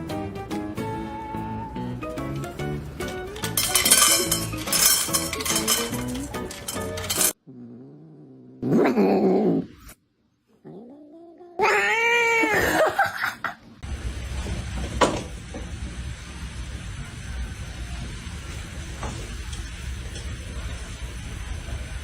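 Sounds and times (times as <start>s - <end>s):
low background hum: 2.4s - 8.7s
cat yowling: 10.7s - 12.9s.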